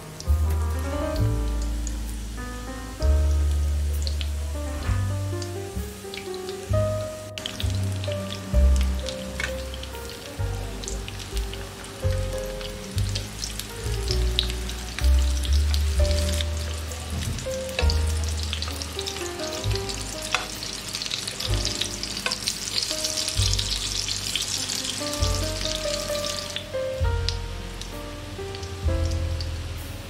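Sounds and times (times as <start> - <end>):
patties sizzling in oil: 0.0 - 30.0
metal spatula turning food: 16.2 - 25.0.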